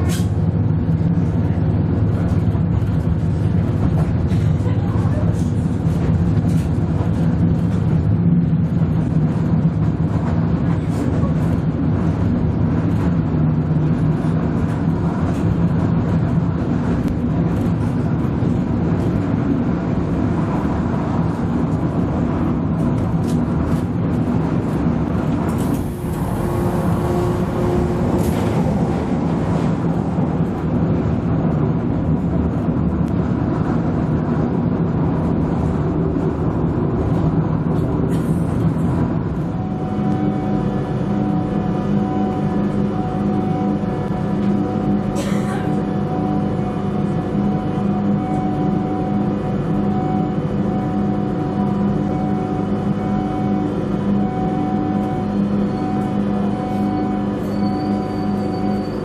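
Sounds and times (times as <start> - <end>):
diesel engine hum: 0.0 - 59.0
wheels rumbling on rails: 0.0 - 59.0.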